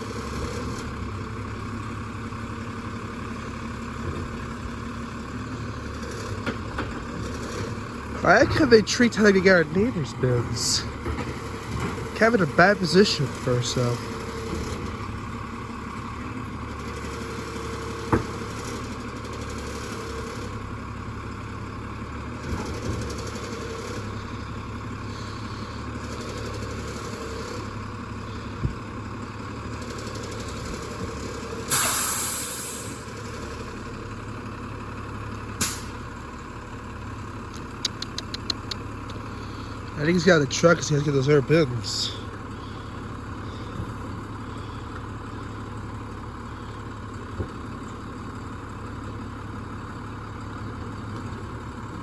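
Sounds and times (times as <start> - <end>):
garbage truck engine running: 0.0 - 52.0
air brake hiss: 31.7 - 33.0, 35.6 - 35.9.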